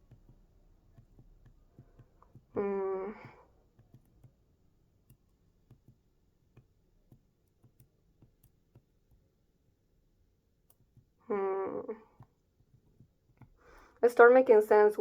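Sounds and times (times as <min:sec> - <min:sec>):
faint irregular clicks: 0:00.0 - 0:09.3, 0:10.6 - 0:11.2, 0:12.0 - 0:14.0.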